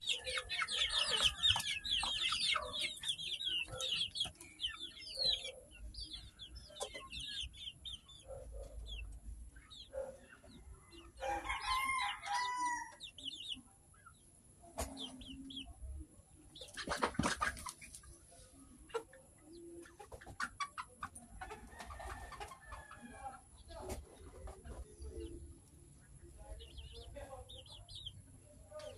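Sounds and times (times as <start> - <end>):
chickens clucking: 0.0 - 28.9
rooster crowing: 11.2 - 13.0.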